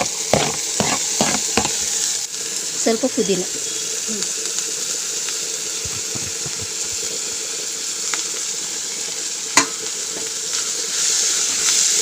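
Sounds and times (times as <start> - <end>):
food sizzling in a pan: 0.0 - 12.0
sharp knock against pan: 9.6 - 9.8.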